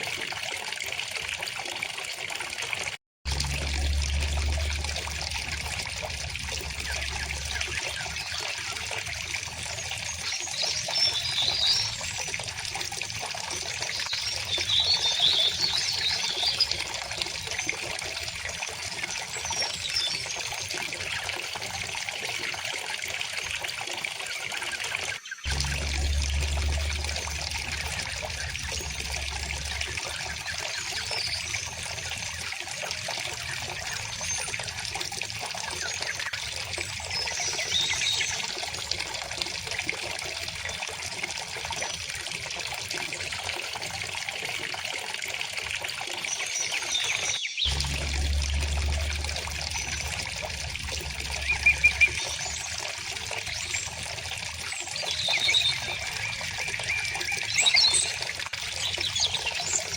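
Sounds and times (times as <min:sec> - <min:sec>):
small river trickling and splashing: 0:00.0 - 0:59.9
songbirds chirping: 0:46.3 - 0:58.2.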